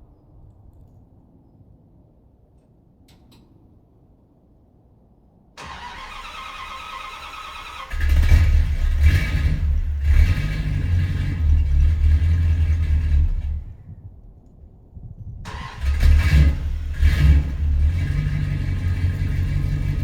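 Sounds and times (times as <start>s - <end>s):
starter motor cranking: 5.6s - 9.6s, 15.5s - 17.5s.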